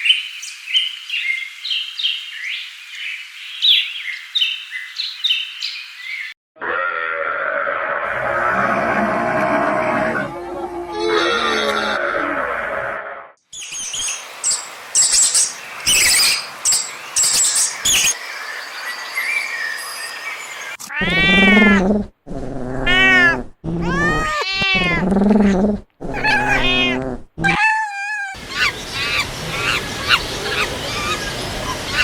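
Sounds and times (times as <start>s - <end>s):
farm animal long cries: 6.6s - 13.3s, 20.9s - 32.0s.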